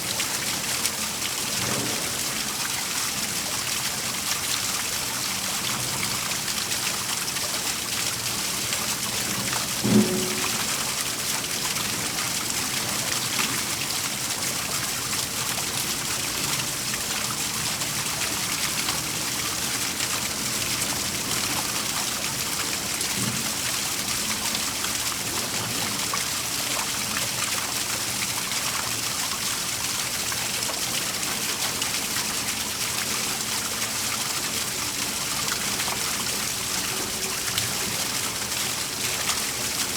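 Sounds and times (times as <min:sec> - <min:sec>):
low thump: 0:09.8 - 0:10.9.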